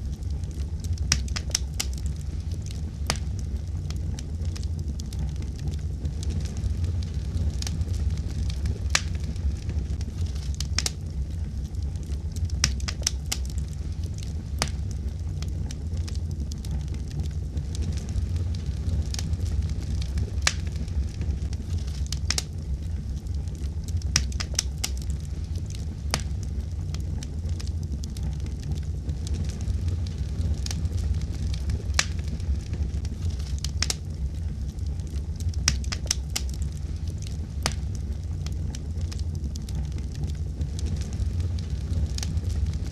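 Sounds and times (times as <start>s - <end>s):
wood fire crackling in fireplace: 0.0s - 42.9s.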